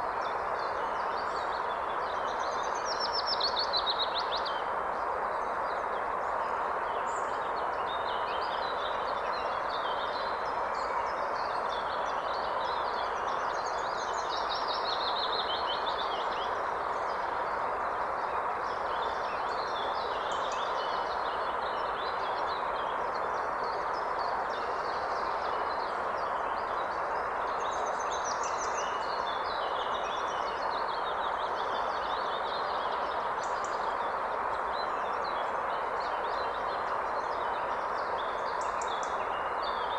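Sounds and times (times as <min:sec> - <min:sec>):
songbirds chirping: 0:23.7 - 0:39.9.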